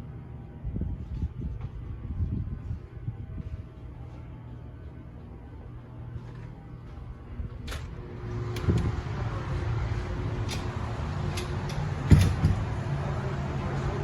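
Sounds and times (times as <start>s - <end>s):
car wash machinery humming: 0.0s - 14.0s
sharp mechanical knocks: 10.4s - 12.8s.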